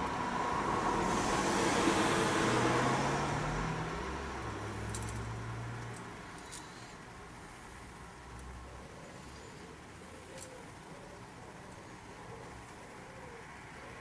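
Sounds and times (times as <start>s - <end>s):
vehicle passing by: 0.0s - 6.0s.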